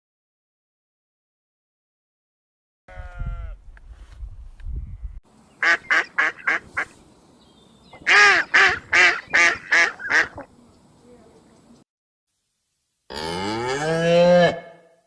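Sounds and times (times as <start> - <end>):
duck quacking: 5.6 - 7.0, 7.9 - 10.5.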